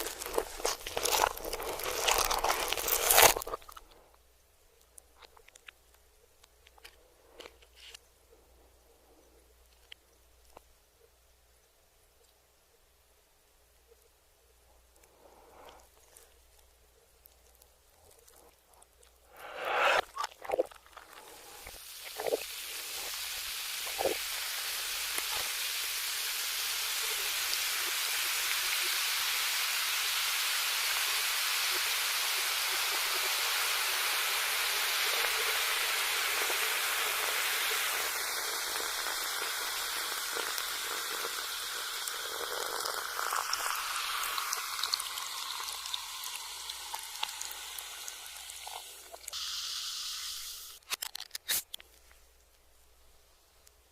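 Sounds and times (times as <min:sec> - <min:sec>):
reversed sizzling hiss: 0:19.2 - 0:20.2, 0:21.2 - 0:50.8.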